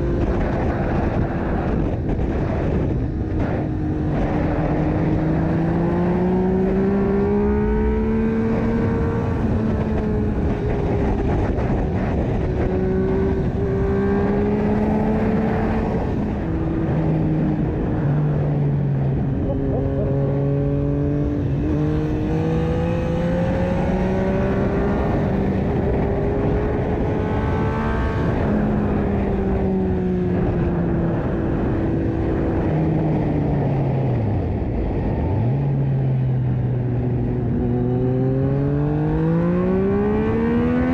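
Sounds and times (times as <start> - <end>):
motorcycle engine revving through gears: 0.0 - 34.2, 35.6 - 40.9
wind rush: 0.0 - 40.9.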